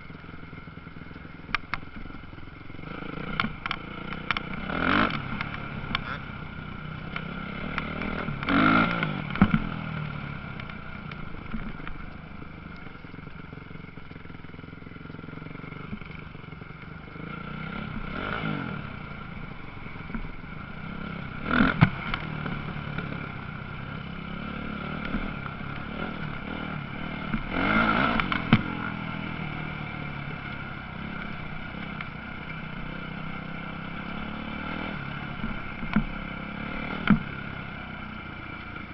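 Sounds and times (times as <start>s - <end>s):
motocross bikes racing: 2.8s - 6.3s, 7.0s - 10.0s, 15.6s - 37.4s.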